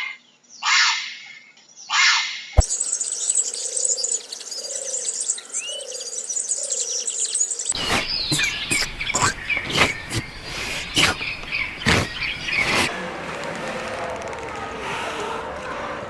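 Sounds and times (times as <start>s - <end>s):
bird chirping: 1.3s - 12.9s
insects chirping: 2.6s - 12.9s.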